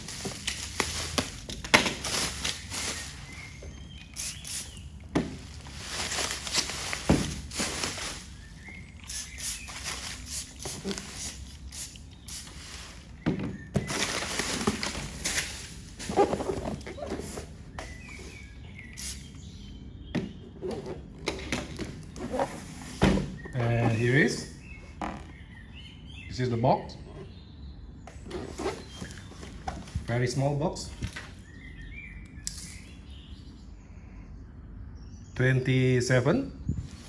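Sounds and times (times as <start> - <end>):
short hissing bursts: 4.2 - 4.8, 9.0 - 13.2, 19.0 - 19.3
cardboard box rustling: 5.2 - 11.4, 12.6 - 18.5, 20.6 - 25.0, 28.1 - 30.1.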